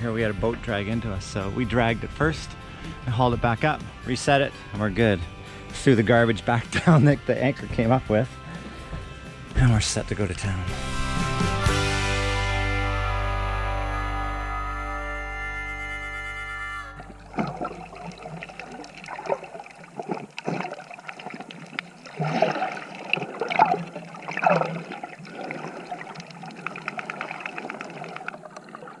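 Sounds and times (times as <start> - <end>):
background music: 0.0 - 19.7
water splashing and sloshing: 6.4 - 11.7, 16.9 - 29.0.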